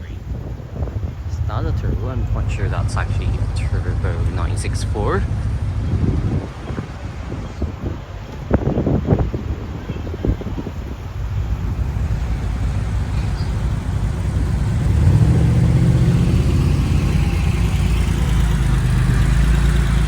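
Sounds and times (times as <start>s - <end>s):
car engine driving past: 0.0s - 20.0s.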